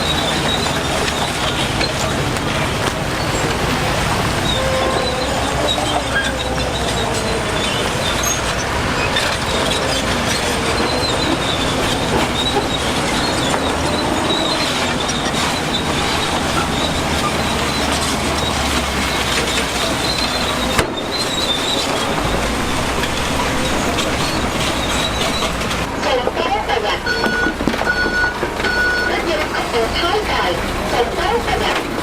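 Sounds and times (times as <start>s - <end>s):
bulldozer engine running: 0.0s - 32.0s
steel tracks squealing: 0.0s - 32.0s.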